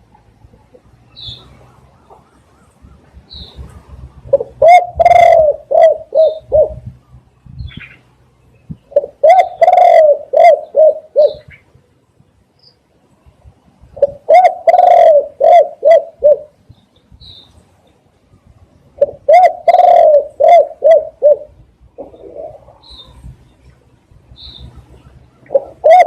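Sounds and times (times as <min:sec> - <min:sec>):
dove cooing: 0:04.2 - 0:06.9, 0:08.9 - 0:11.6, 0:14.0 - 0:16.6, 0:19.0 - 0:23.2, 0:25.3 - 0:26.0.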